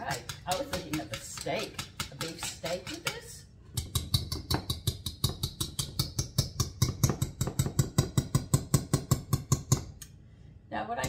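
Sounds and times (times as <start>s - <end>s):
utensil clacking against a bowl: 0.0s - 10.1s.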